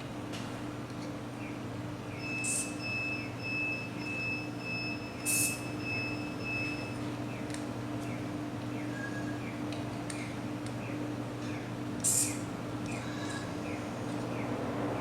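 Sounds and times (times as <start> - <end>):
low steady hum: 0.0 - 15.0
high-pitched whine: 2.1 - 7.0, 12.0 - 15.0.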